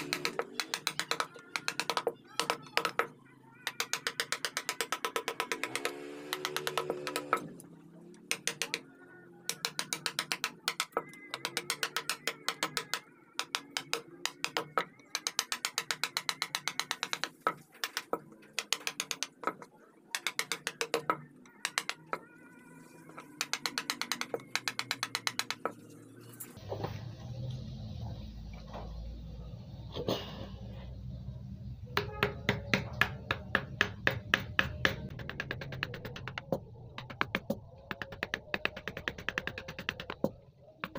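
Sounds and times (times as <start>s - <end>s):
mallet tapping chisel into wood: 0.0s - 3.1s, 3.7s - 7.5s, 8.3s - 8.8s, 9.5s - 19.6s, 20.2s - 22.3s, 23.2s - 25.8s, 32.0s - 40.9s.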